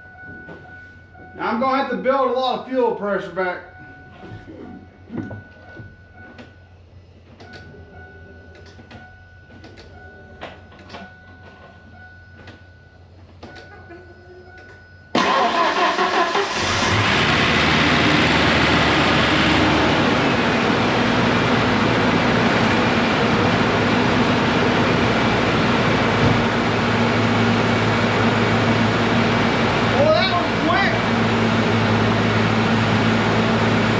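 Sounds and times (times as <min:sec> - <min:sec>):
engine starting and running: 0:15.1 - 0:33.9.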